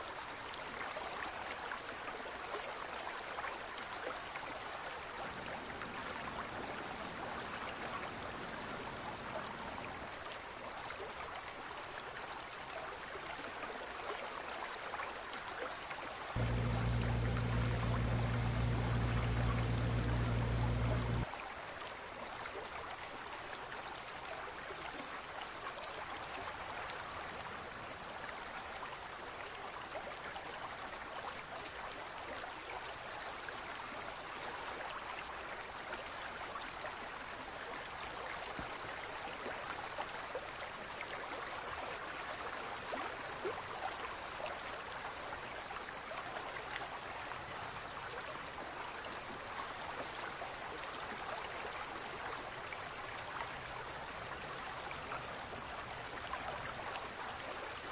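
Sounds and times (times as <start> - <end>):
trickling bubbling water: 5.3 - 10.1, 16.4 - 21.2
loud low drone: 16.4 - 21.2.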